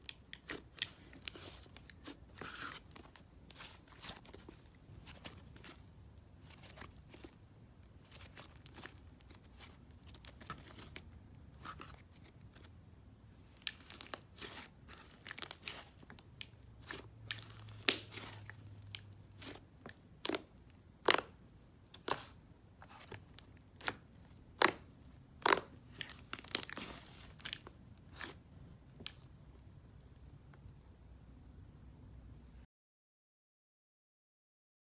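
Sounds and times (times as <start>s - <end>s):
slime crackling and popping: 20.2s - 21.4s, 24.6s - 27.6s.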